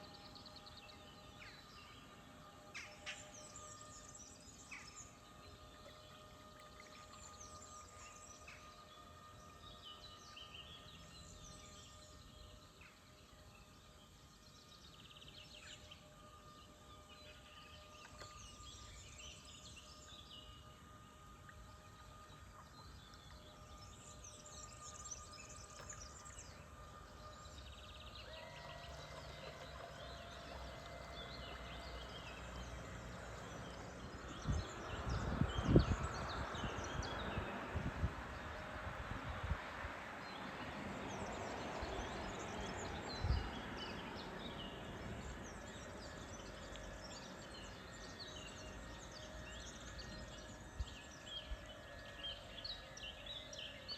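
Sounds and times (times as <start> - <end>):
steady whine: 0.0 - 53.2
faint steady tones: 0.0 - 53.9
birds chirping and singing: 41.9 - 53.9.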